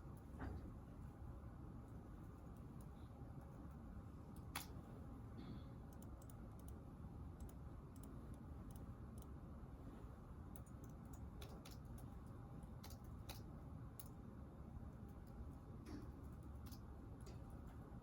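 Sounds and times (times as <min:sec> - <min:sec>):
low room hum: 0:00.0 - 0:18.0
typing on a keyboard: 0:10.5 - 0:12.1.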